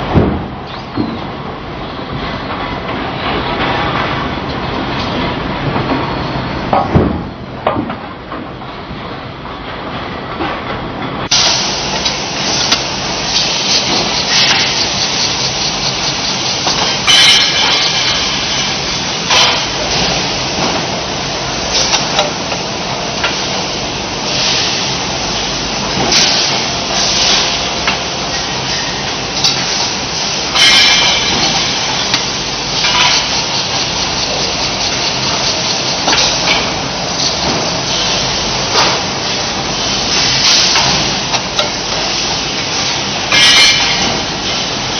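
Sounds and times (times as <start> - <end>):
sharp metallic knocks: 30.5 - 32.1.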